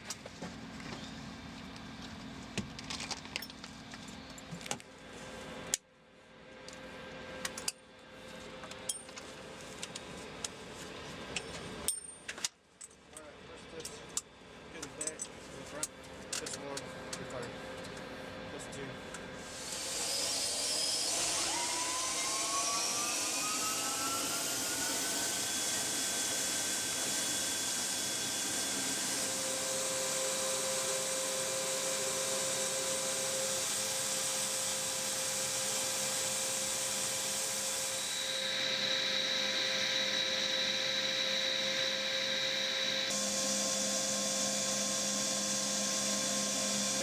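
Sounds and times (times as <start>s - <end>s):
turbine engine whine: 13.3s - 47.0s.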